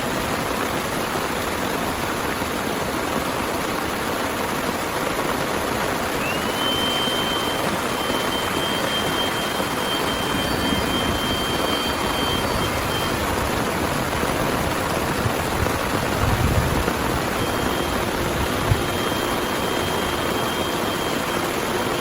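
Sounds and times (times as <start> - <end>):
heavy rain falling: 0.0 - 22.0
thin high tone: 6.1 - 22.0.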